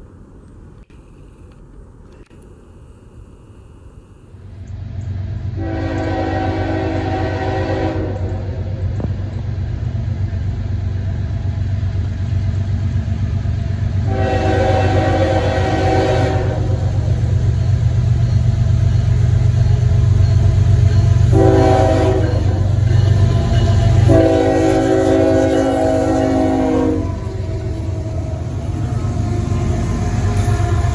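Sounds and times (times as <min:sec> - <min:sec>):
locomotive engine rumble: 0:04.4 - 0:30.9
locomotive air horn blasts: 0:05.6 - 0:08.6, 0:14.0 - 0:17.0, 0:20.8 - 0:30.9.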